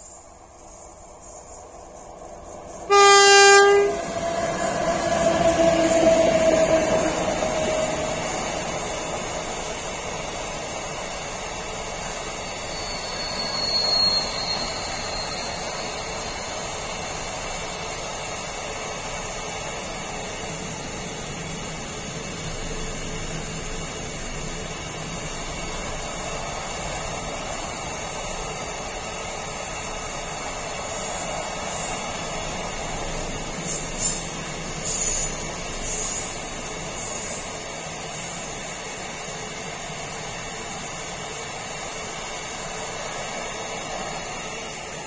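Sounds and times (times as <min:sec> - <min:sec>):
train wheels running over rails: 0:00.0 - 0:45.0
high-pitched wheel squeal: 0:11.9 - 0:17.2.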